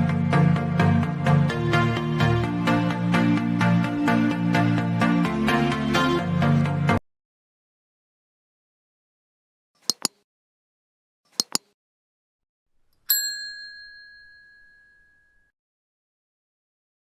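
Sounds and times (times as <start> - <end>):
bright bell ding: 13.1 - 15.5.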